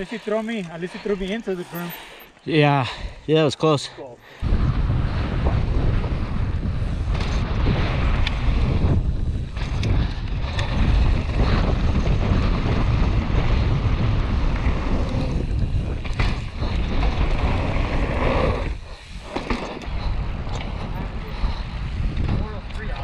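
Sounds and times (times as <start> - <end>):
bike tyre noise: 4.2 - 23.0
wind buffeting microphone: 4.3 - 23.0.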